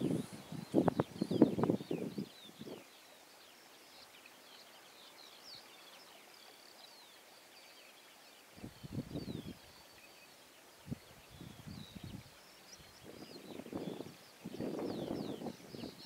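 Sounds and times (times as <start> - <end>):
small bird twittering: 0.0 - 3.0.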